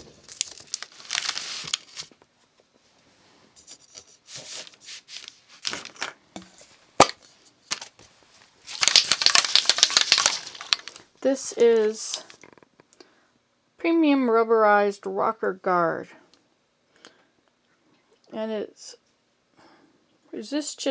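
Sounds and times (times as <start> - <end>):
can handling rustles: 0.0 - 2.2, 3.5 - 12.6.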